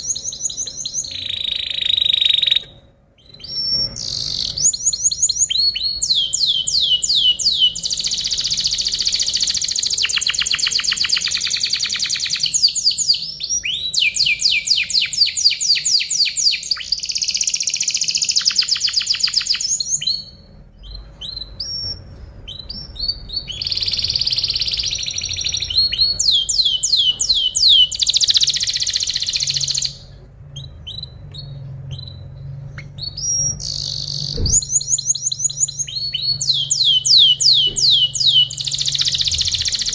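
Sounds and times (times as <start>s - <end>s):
canary chirps: 0.0s - 39.9s
canary singing trills: 0.0s - 39.9s.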